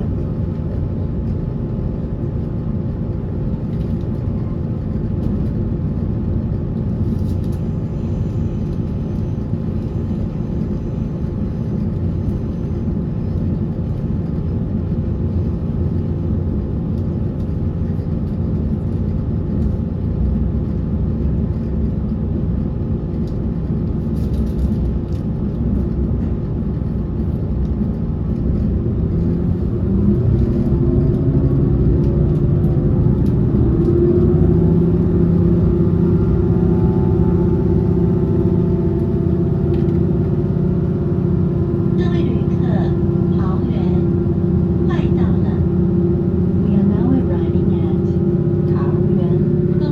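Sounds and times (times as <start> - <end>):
train wheels rumbling on rail: 0.0 - 49.9
train motor whine: 31.9 - 49.9.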